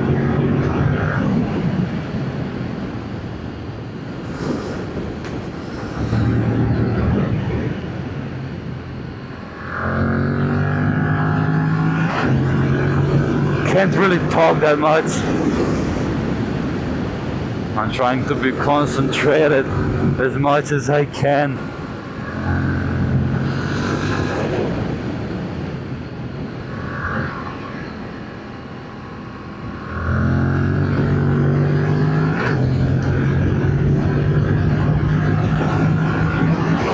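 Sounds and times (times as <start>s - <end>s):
motorcycle engine while riding: 0.0s - 20.3s, 21.6s - 36.9s
motorcycle engine under way: 9.6s - 13.8s, 22.0s - 25.1s, 29.4s - 36.9s.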